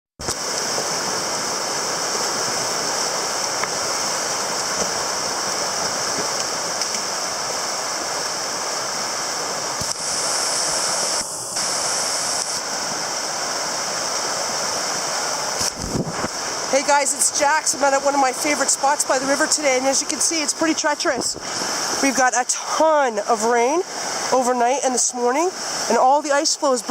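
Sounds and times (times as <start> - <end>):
river rushing: 0.2 - 26.9.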